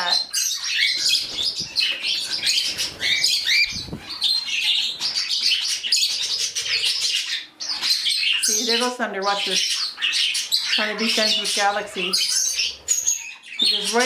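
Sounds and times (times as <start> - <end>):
budgies chattering and chirping: 0.0 - 14.0
wings fluttering: 0.9 - 6.6.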